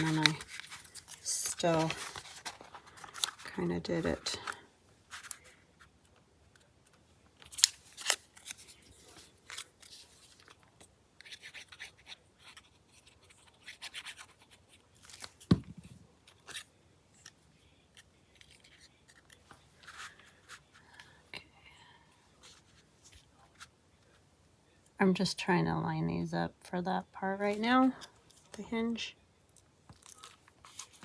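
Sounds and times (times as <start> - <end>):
paper rustling: 0.0 - 5.9, 7.4 - 17.4, 18.3 - 21.1, 30.0 - 31.0.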